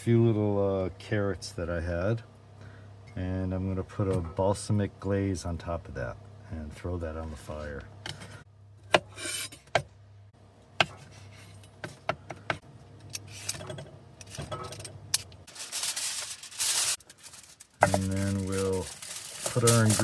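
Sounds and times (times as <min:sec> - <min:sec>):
aluminum foil crinkling: 0:15.5 - 0:20.0.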